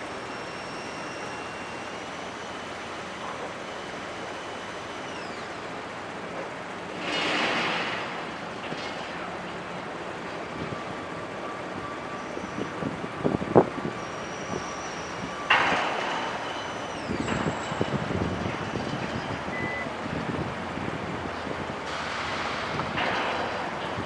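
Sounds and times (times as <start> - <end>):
road and wind noise: 2.0 - 24.0.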